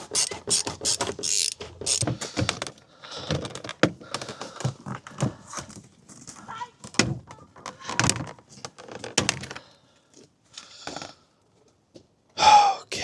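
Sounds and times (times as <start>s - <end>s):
breath or voice: 12.4s - 12.9s.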